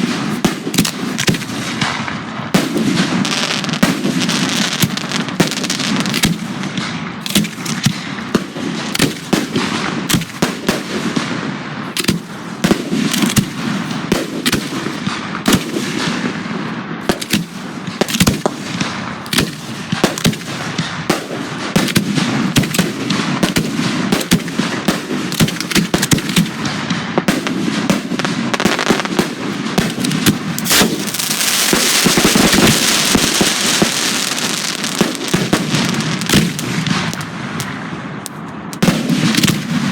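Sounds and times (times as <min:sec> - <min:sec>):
fireworks bangs: 0:00.0 - 0:39.9
fireworks hissing crackle: 0:02.6 - 0:06.6, 0:28.5 - 0:39.9.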